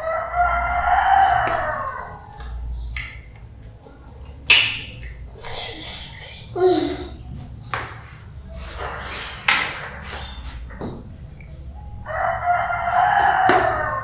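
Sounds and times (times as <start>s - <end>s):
rooster crowing: 0.0s - 2.7s, 11.9s - 14.0s
kitchen knocks and clatters: 7.2s - 11.5s.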